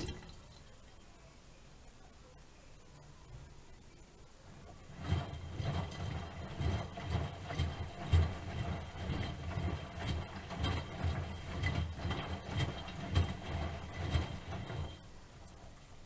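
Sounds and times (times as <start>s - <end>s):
washing machine drum turning: 0.0s - 0.6s, 4.5s - 15.5s
laundry thudding and sloshing: 4.8s - 15.0s.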